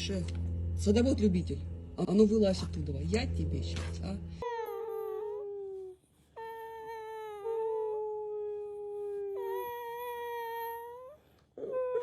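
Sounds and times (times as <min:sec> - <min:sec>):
dog whining: 0:04.4 - 0:12.0.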